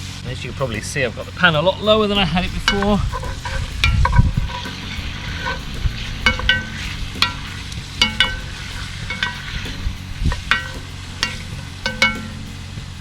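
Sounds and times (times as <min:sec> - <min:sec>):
beef sizzling in a pot: 0:00.0 - 0:13.0
metal utensil scraping pot: 0:02.2 - 0:12.5.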